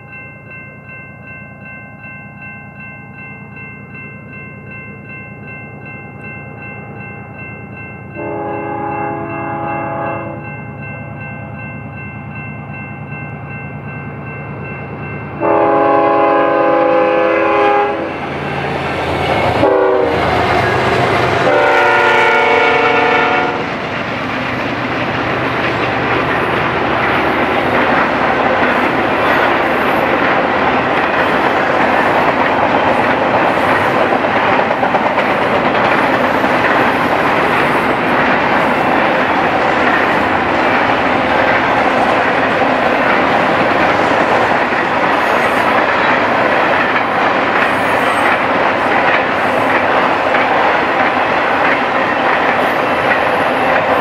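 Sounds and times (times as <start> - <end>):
freight train rumbling past: 0.0 - 54.0
locomotive air horn: 8.2 - 10.4, 15.4 - 18.2, 19.6 - 23.7.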